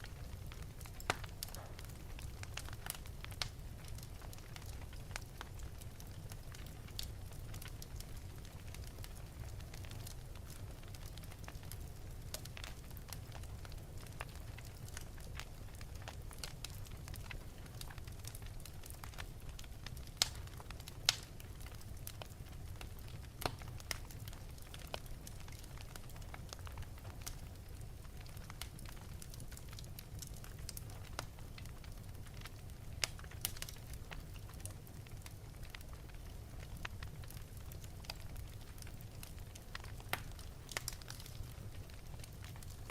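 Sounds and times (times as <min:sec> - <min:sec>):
fire crackling and popping: 0:00.0 - 0:42.9.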